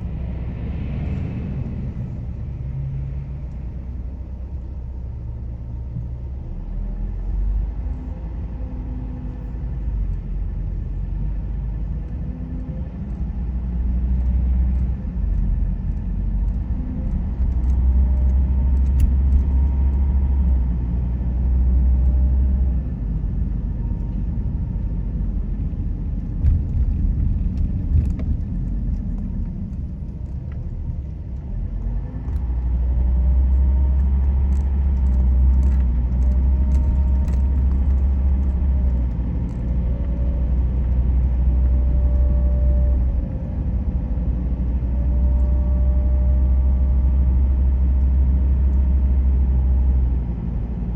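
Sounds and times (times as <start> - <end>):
road and engine rumble: 0.0 - 50.9
faint clicks and rattles: 12.1 - 20.6, 25.7 - 32.8, 33.5 - 42.2.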